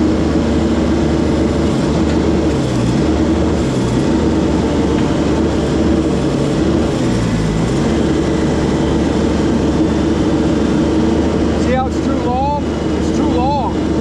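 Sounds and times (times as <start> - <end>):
small gasoline engine droning: 0.0 - 14.0.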